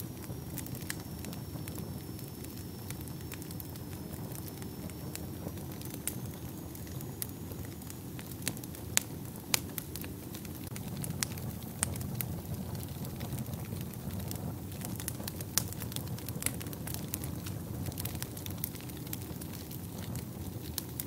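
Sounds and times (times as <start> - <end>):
fire crackling and popping: 0.0 - 21.0
fire rumbling: 0.0 - 21.0.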